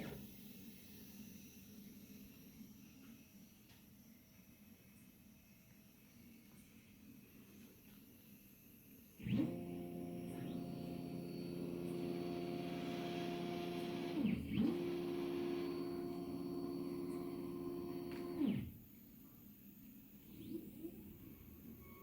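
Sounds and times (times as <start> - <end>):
stepper motor whine: 9.2 - 22.0.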